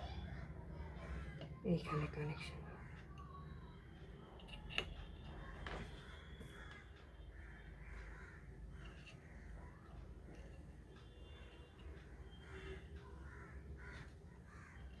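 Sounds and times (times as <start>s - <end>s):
crows cawing: 6.0s - 9.7s, 12.3s - 15.0s.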